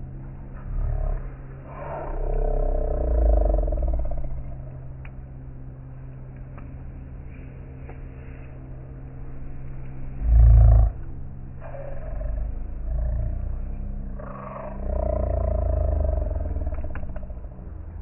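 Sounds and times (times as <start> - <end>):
low rumbling surges: 0.0 - 18.0
wood fire burning: 1.0 - 10.2.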